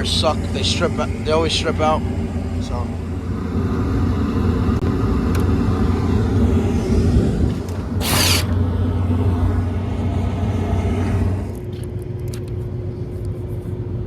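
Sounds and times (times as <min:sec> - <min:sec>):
loud burst of noise: 0:00.0 - 0:09.0
hvac unit humming: 0:00.0 - 0:14.0.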